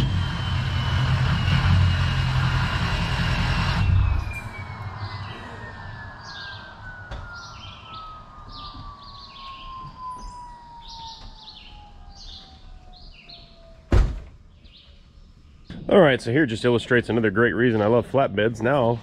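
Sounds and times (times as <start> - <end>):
faint falling whistle: 3.4 - 14.1
songbird chirping: 4.4 - 18.0.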